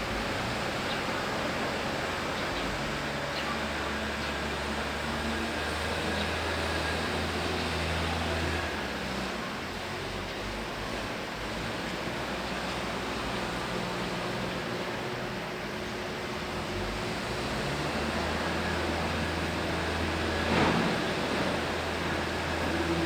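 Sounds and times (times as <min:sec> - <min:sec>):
backhoe engine running: 0:10.9 - 0:23.0.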